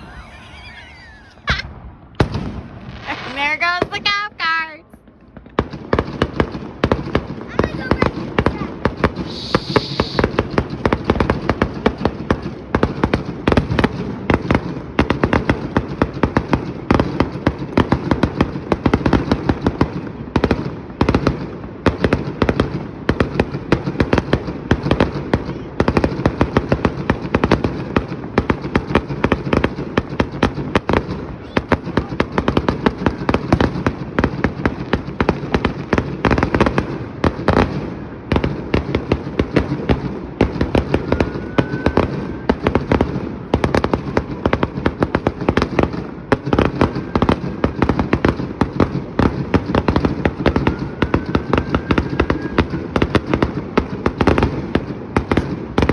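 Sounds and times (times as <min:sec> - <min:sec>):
firework fizz: 0:00.0 - 0:05.0, 0:05.6 - 0:16.4
fireworks bangs and crackles: 0:00.0 - 0:55.9.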